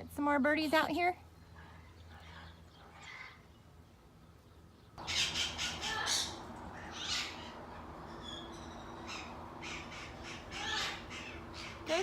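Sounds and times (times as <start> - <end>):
faint steady hum: 1.2 - 12.0
parrots squawking: 5.0 - 12.0.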